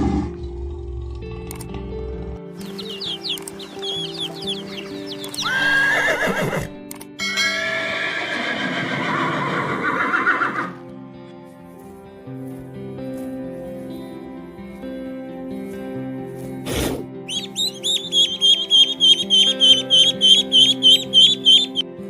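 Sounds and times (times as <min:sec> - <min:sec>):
background music: 0:00.0 - 0:22.0
high chirps: 0:02.6 - 0:06.2, 0:17.3 - 0:21.9
horse whinnying: 0:05.4 - 0:06.8, 0:08.0 - 0:10.8.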